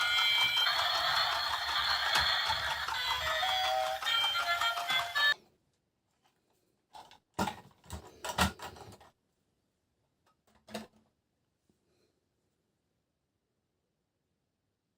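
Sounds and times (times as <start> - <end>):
knocks and clatter of objects: 6.9 - 9.2.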